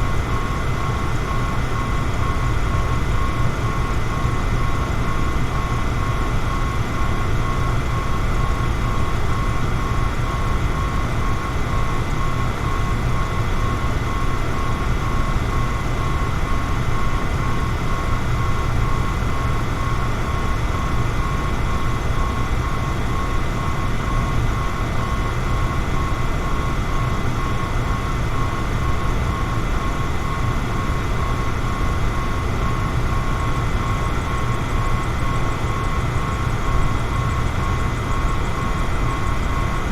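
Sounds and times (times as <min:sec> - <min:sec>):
electric fan running: 0:00.0 - 0:39.9.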